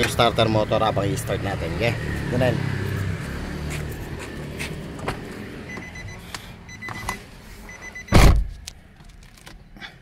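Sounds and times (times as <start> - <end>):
car warning chime beeping: 5.6 - 8.2
loud short thud: 8.1 - 8.5.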